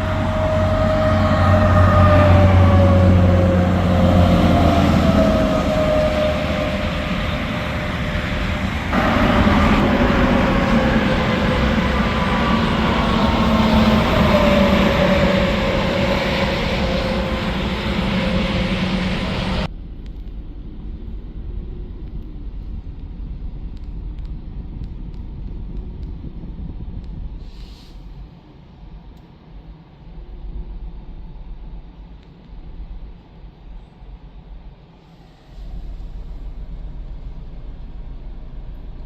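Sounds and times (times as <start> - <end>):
heavy trucks passing: 0.0 - 19.7, 35.2 - 39.0
wind-like rumble: 0.0 - 39.0.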